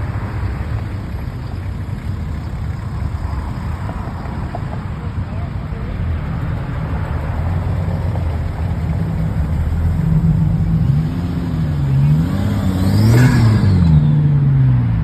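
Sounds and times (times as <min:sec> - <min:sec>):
car engine revving: 0:07.2 - 0:15.0.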